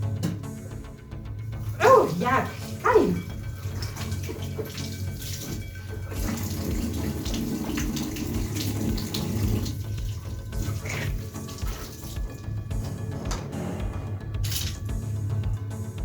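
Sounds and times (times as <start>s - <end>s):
water running from tap: 1.4s - 15.8s.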